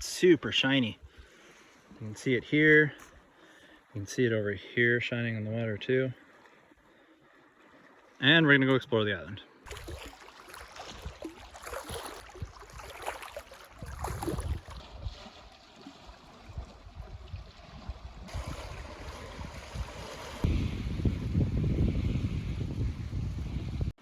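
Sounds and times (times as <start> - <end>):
small waves lapping: 0.0 - 4.1, 5.9 - 24.0
wind rumbling on microphone: 13.7 - 24.0.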